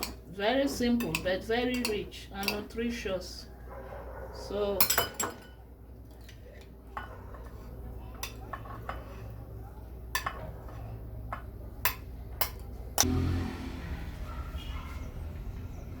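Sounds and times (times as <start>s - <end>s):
kitchen utensils clinking: 0.9s - 2.8s, 4.7s - 7.6s.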